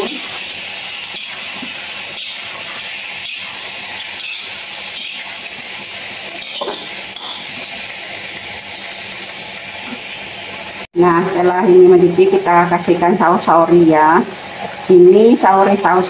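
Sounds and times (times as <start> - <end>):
chicken sizzling in hot oil: 0.0 - 16.0
metal spatula scraping pan: 1.0 - 7.8.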